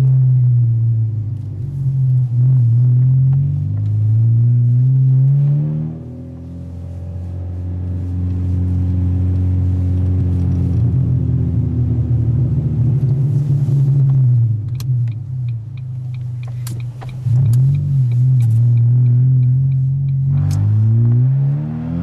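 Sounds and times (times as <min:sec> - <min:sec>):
car engine droning: 0:00.0 - 0:22.0
engine revving: 0:01.7 - 0:14.3, 0:16.6 - 0:22.0
sharp clicks: 0:14.6 - 0:20.7.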